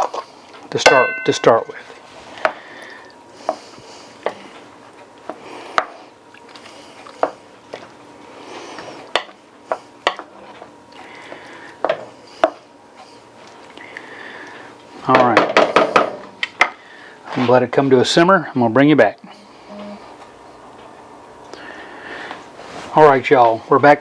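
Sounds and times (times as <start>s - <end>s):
metal spoon clinking against pot: 0.9s - 1.8s.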